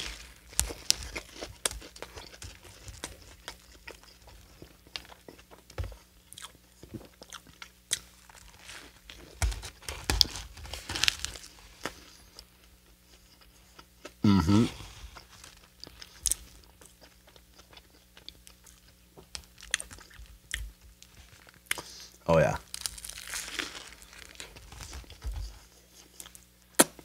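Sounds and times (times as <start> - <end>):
crunchy chewing: 0.0 - 27.0
biting into crispy sandwich: 13.2 - 27.0.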